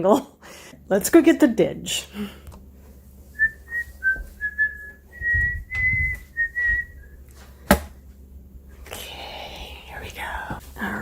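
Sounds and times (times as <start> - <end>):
low bumps of movement: 3.4 - 7.0
person whistling a tune: 3.4 - 7.1.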